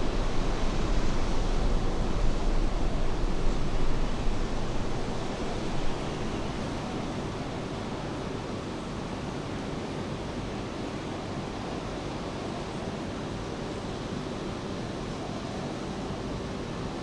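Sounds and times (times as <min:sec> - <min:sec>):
rain falling: 0:00.0 - 0:08.1
faint steady hum: 0:00.0 - 0:08.6.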